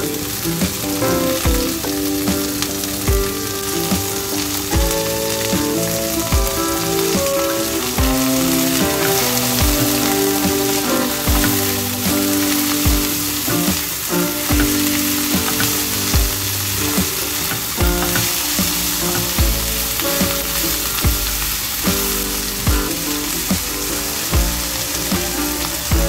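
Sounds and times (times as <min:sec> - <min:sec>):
leaves and onions sizzling in a pan: 0:00.0 - 0:26.0.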